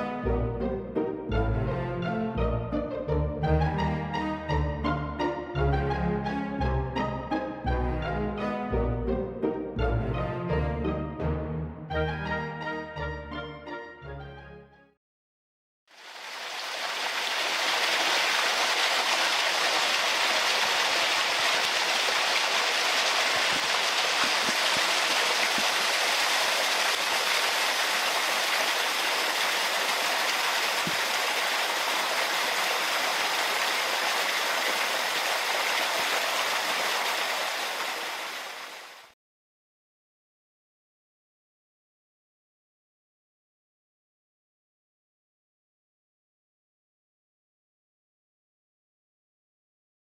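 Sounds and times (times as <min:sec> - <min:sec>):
rushing water: 0:15.9 - 0:39.1.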